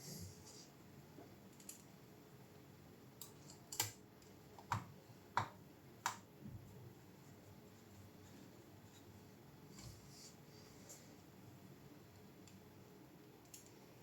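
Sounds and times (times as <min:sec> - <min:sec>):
sharp clicks and taps of small parts: 0:03.2 - 0:06.2, 0:13.4 - 0:13.8.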